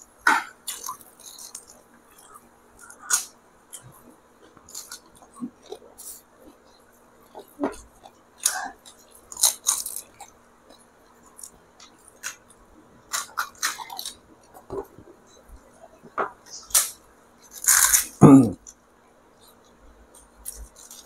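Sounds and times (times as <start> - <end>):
crisp puris crunching: 0.4 - 15.0, 16.6 - 18.8, 19.4 - 21.0.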